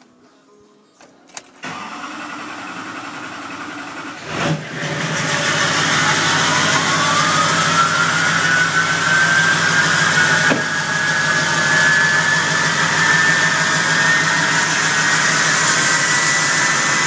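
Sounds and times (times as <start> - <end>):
engine turning over and running: 1.6 - 17.0
whine climbing in pitch: 5.3 - 17.0.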